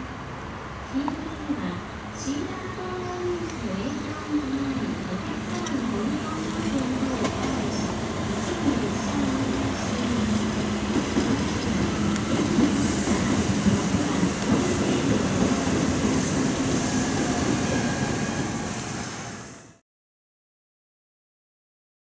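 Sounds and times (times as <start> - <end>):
train wheels rumbling: 2.3 - 19.7.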